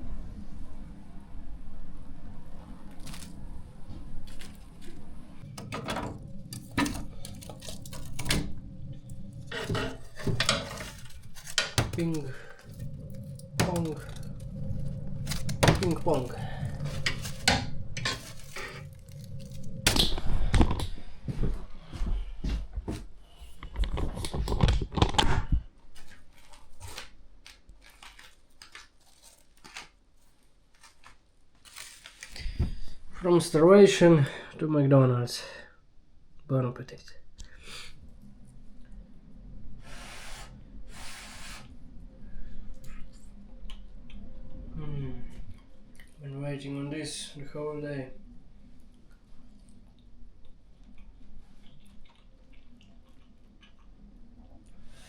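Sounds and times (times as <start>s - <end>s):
low rumble: 0.0s - 26.2s, 37.2s - 40.9s
crinkling and rustling handling: 2.7s - 33.0s.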